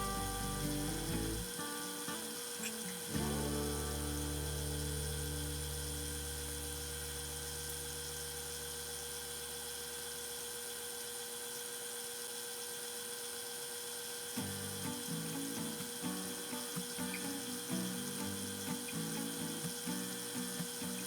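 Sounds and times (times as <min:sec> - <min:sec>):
thin high whine: 0:00.0 - 0:09.7, 0:14.4 - 0:21.0
machine humming: 0:00.0 - 0:09.8, 0:14.4 - 0:21.0.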